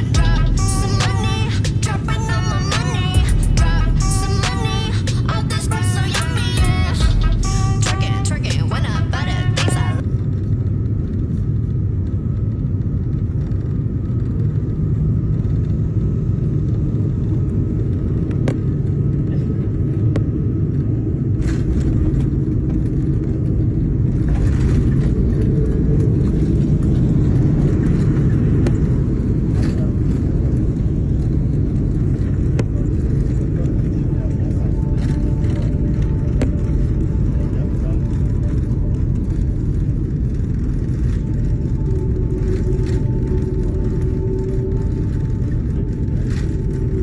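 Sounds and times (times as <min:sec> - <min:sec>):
jet airliner rumble: 0:00.0 - 0:47.0
thin jet whine: 0:29.8 - 0:47.0.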